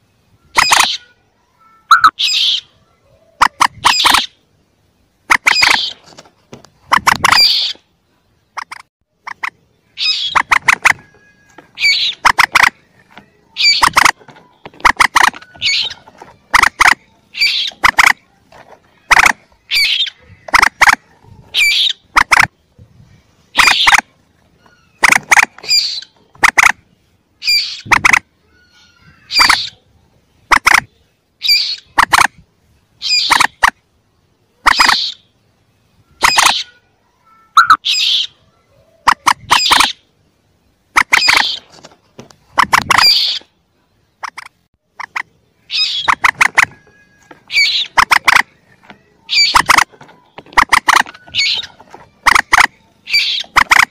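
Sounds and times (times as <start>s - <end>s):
moorhen calls: 0.4s - 1.2s, 1.8s - 4.5s, 5.2s - 6.2s, 6.8s - 22.8s, 23.4s - 32.4s, 33.0s - 33.8s, 34.5s - 40.1s, 40.9s - 41.8s, 42.4s - 43.6s, 44.2s - 53.9s.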